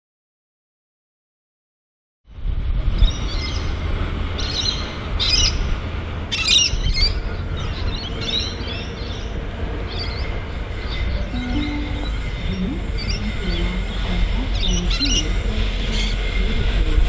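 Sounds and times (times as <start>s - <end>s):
steady low rumble: 2.3s - 17.0s
birds chirping: 6.3s - 16.8s.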